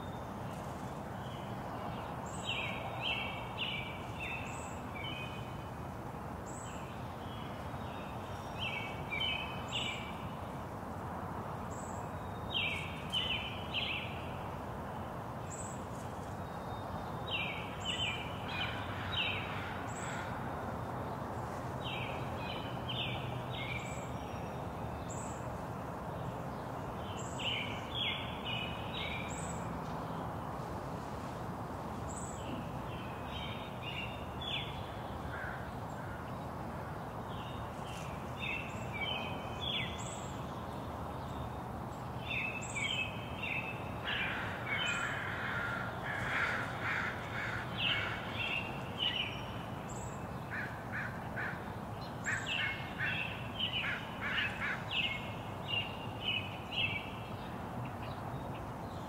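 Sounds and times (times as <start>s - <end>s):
wild birds calling: 42.3s - 56.0s.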